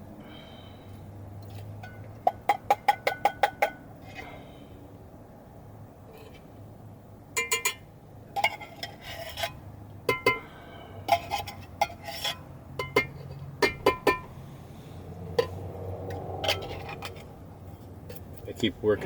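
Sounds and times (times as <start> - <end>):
metal cookware clinking: 7.4 - 10.4, 11.1 - 14.3.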